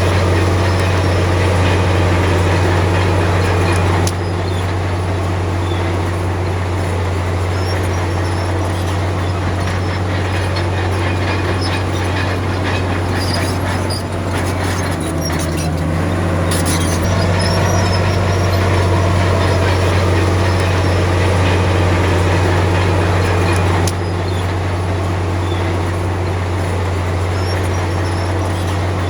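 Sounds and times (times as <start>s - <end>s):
bulldozer diesel engine running: 0.0s - 29.0s
tracks squeaking and clanking: 0.0s - 29.0s.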